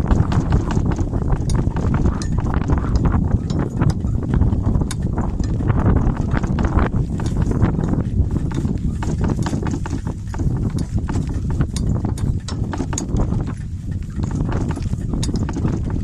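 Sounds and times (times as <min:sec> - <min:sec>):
donkey hoofbeats: 0:00.0 - 0:16.0
wind rumble on microphone: 0:00.0 - 0:16.0.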